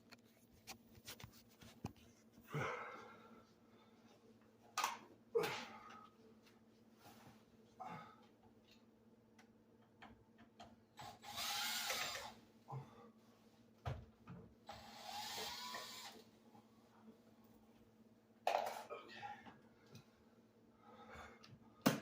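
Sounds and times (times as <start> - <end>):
cordless drill running: 11.0 - 12.4, 14.7 - 16.2.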